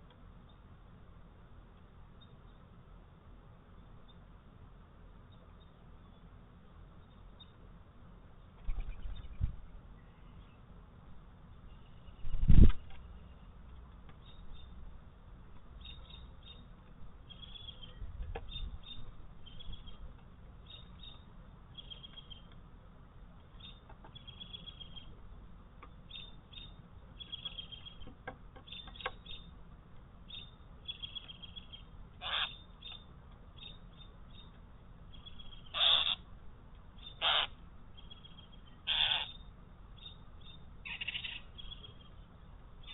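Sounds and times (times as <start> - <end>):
birds chirping: 5.1 - 10.8, 11.4 - 42.9
harsh bird calls: 15.8 - 22.5, 25.8 - 29.6, 30.3 - 36.3, 37.0 - 42.9.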